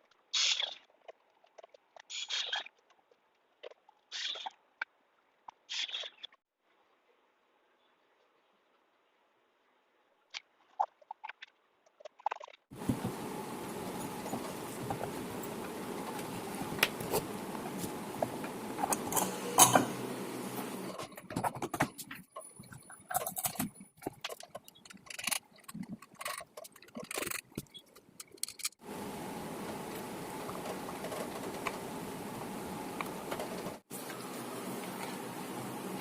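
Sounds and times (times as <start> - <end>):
water pump motor running: 12.8 - 21.1.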